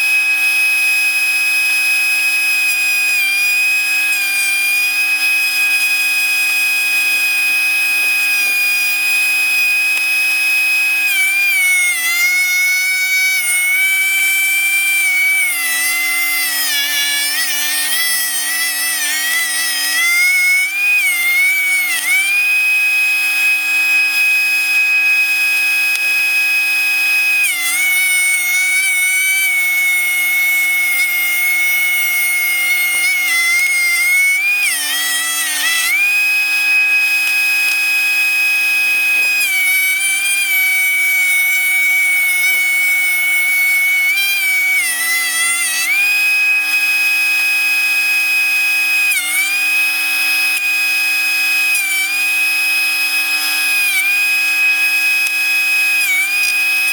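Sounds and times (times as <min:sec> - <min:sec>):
thickness planer whining: 0:00.0 - 0:56.9.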